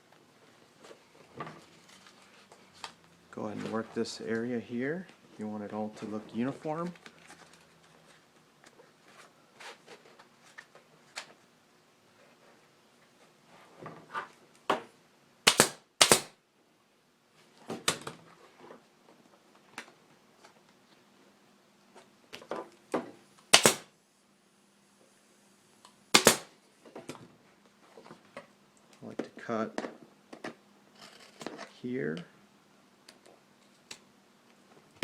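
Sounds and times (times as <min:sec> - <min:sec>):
staple gun firing: 0:15.5 - 0:16.3, 0:23.5 - 0:23.9, 0:26.2 - 0:26.5.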